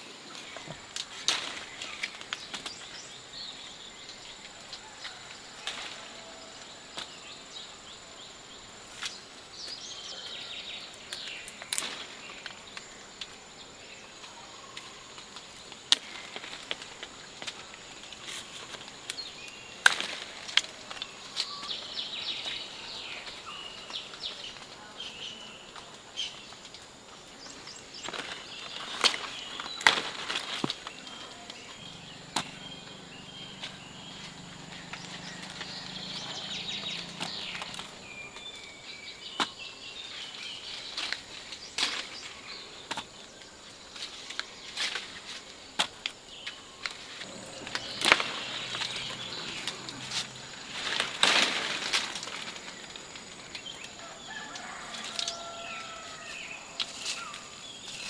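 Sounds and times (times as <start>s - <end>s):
bird call: 30.9s - 39.8s, 46.5s - 57.6s
bird chirps: 30.9s - 40.9s, 46.4s - 58.0s.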